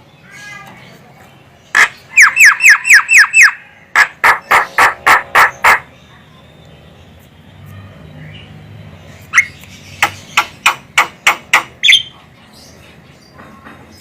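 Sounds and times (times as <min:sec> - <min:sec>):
myna calling: 0:01.7 - 0:06.2.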